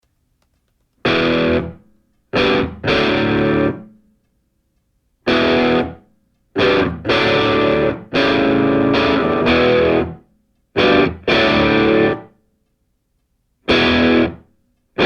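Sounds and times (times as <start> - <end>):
distorted electric guitar chords: 1.0 - 4.0, 5.3 - 6.0, 6.6 - 10.2, 10.8 - 12.3, 13.7 - 15.0.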